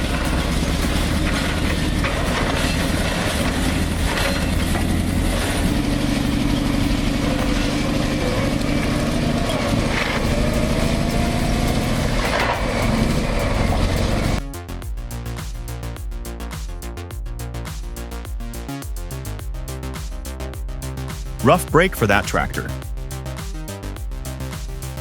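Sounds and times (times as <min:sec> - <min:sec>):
bulldozer diesel engine running: 0:00.0 - 0:14.4.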